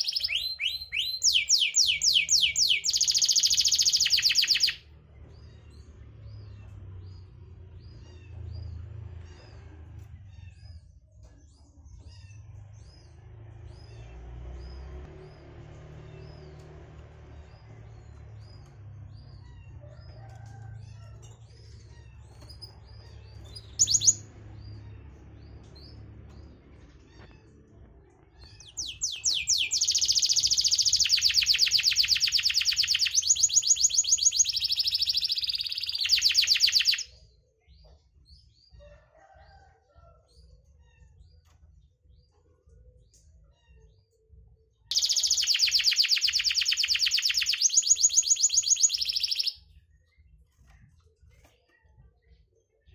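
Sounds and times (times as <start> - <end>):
canary singing trills: 0.0 - 4.8, 21.5 - 26.1, 28.4 - 37.2, 44.9 - 49.7
faint bird chirps: 0.0 - 4.8, 19.3 - 25.1, 28.4 - 37.3, 44.9 - 49.8.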